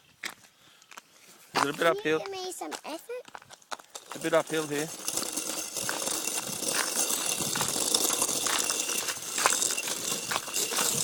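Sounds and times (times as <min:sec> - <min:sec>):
bicycle rattling and crackling: 0:03.3 - 0:11.0.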